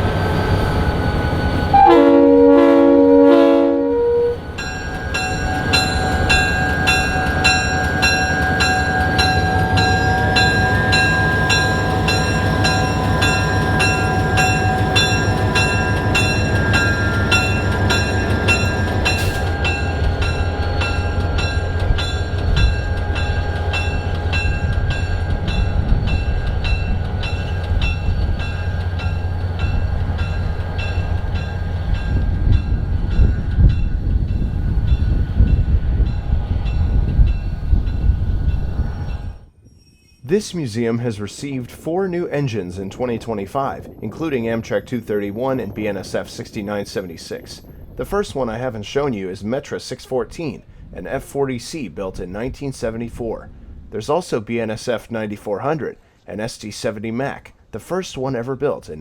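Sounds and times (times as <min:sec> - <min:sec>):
train engine rumbling: 0:00.0 - 0:56.1
bell ringing: 0:04.2 - 0:32.1.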